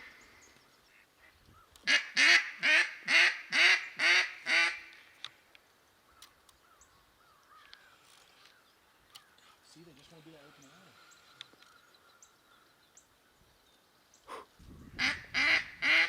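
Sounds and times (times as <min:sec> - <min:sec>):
duck quacking: 0:01.9 - 0:04.9, 0:15.0 - 0:16.0.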